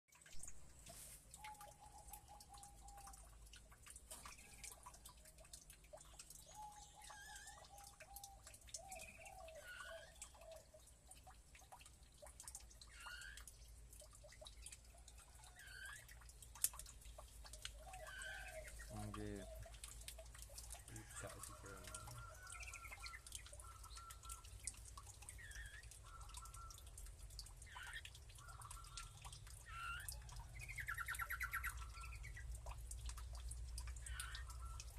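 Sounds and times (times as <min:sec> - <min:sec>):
birds chirping and whistling: 0:21.8 - 0:24.7, 0:29.7 - 0:32.4.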